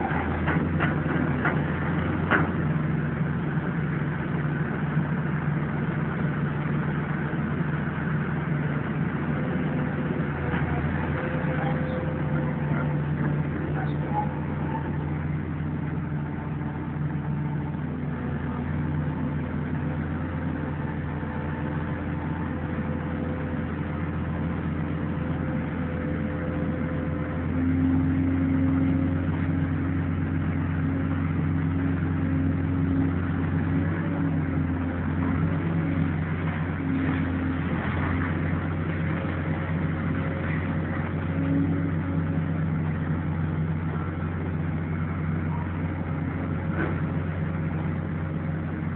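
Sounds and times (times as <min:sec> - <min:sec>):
heavy machinery engine running: 0:00.0 - 0:48.9.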